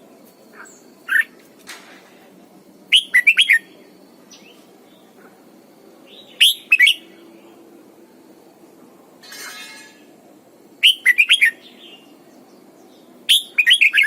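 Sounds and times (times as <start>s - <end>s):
bird whistling song: 1.0s - 1.3s, 2.9s - 4.6s, 6.1s - 7.2s, 10.8s - 12.2s, 12.8s - 14.0s.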